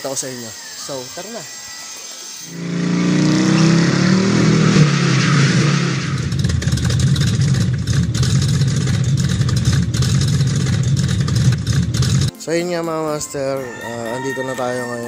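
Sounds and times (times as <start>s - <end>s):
car engine revving: 2.5s - 12.3s.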